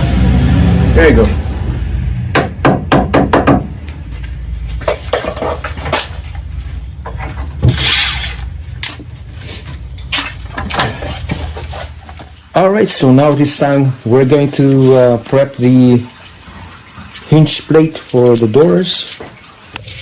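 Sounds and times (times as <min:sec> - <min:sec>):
wood scraping: 0:04.1 - 0:12.4
wooden pieces knocking: 0:04.8 - 0:06.2.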